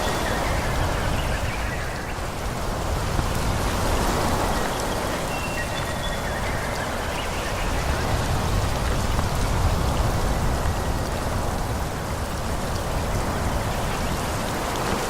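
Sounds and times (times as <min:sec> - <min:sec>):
low wind rumble: 0:00.0 - 0:15.0
wind rushing through leaves: 0:00.0 - 0:15.0.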